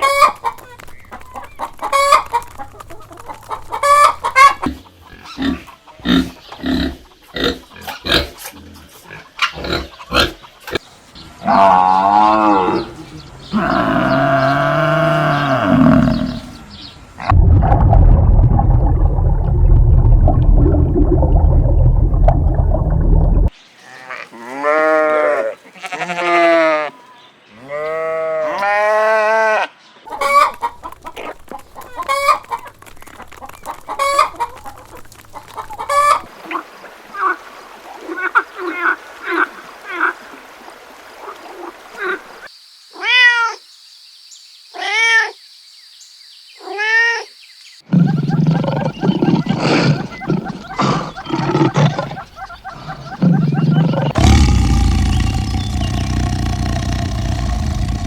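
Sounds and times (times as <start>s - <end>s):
drawn-out rising and falling calls: 48.0s - 58.0s
loud low rough sound: 54.2s - 58.0s.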